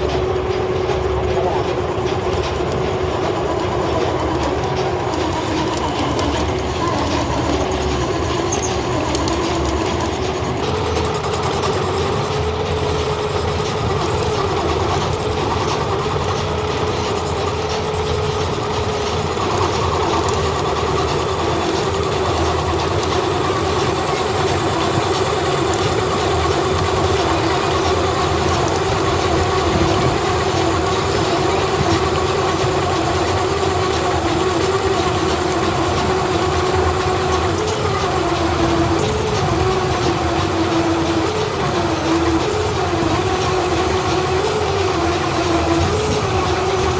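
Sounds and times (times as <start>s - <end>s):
heavy factory machinery running: 0.0s - 46.9s.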